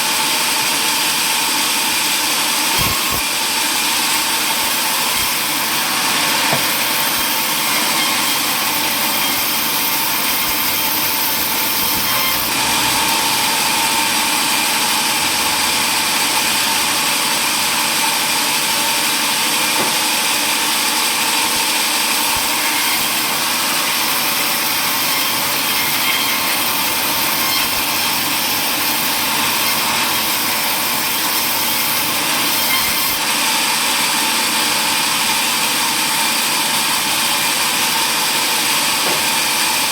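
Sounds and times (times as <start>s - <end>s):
power saw cutting wood: 0.0s - 39.9s.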